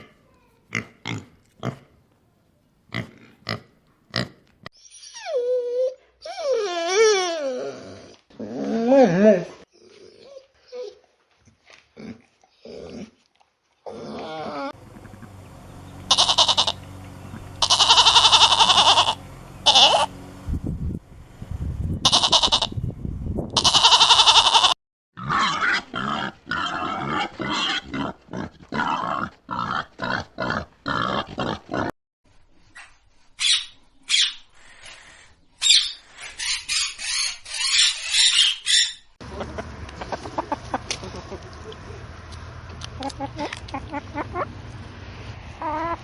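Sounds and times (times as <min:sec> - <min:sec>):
animal bleating: 0:16.0 - 0:16.9, 0:17.5 - 0:20.1, 0:22.0 - 0:22.8, 0:23.6 - 0:24.8
high-pitched squeals: 0:16.0 - 0:20.4
pig grunting: 0:25.2 - 0:31.9.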